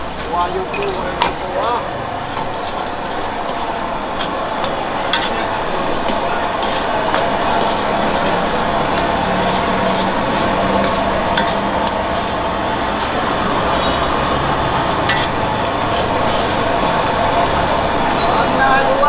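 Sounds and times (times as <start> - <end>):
metal utensil clinking on pan: 0.7 - 1.3, 2.4 - 7.9, 8.9 - 12.0, 15.0 - 15.4
noodles sizzling in a pan: 1.5 - 19.0.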